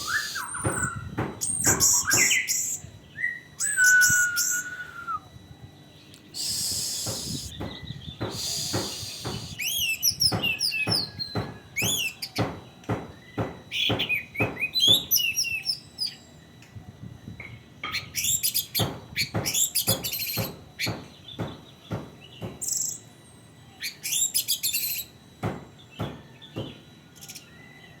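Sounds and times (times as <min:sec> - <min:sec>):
thrush singing: 0:00.0 - 0:00.9
sharp knocks: 0:00.6 - 0:02.4, 0:06.9 - 0:09.6, 0:10.3 - 0:15.2, 0:18.8 - 0:22.6, 0:25.4 - 0:26.8.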